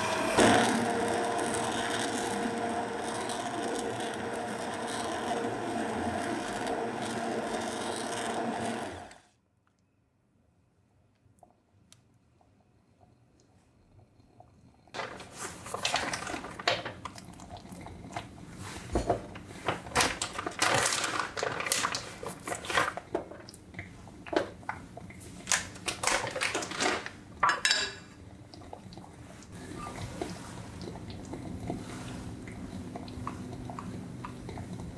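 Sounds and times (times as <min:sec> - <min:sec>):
utensils clinking against dishes: 0:26.6 - 0:28.1.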